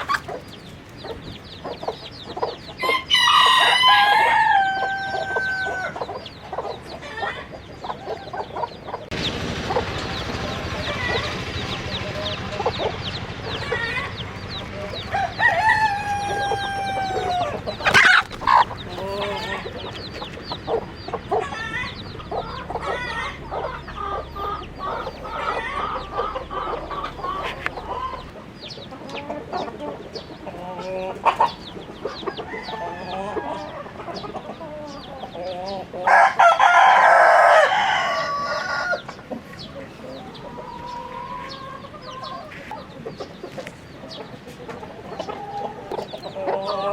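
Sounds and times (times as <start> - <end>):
chickens clucking: 0.0 - 46.9
rooster crowing: 2.8 - 6.1, 12.6 - 19.8, 32.2 - 33.9, 36.0 - 39.2.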